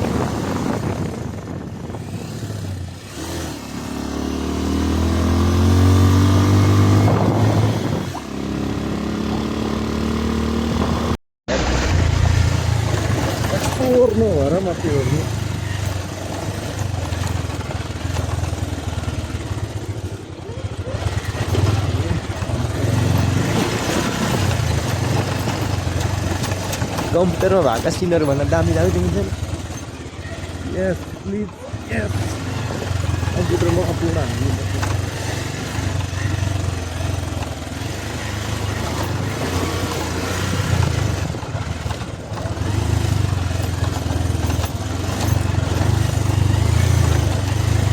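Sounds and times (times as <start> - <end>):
motorcycle engine running: 0.0 - 47.9
wind and road noise: 0.0 - 47.9.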